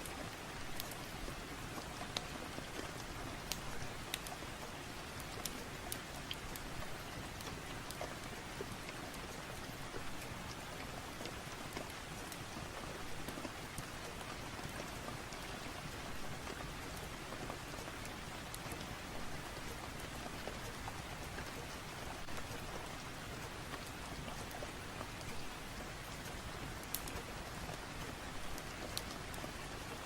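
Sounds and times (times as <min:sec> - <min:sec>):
steady rain falling: 0:00.0 - 0:30.0
wood fire crackling: 0:00.2 - 0:30.0.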